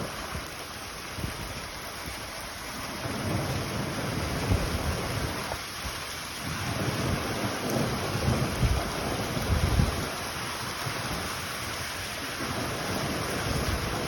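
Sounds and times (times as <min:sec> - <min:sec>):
rain hiss: 0:00.0 - 0:14.0
rolling thunder rumble: 0:06.4 - 0:11.4.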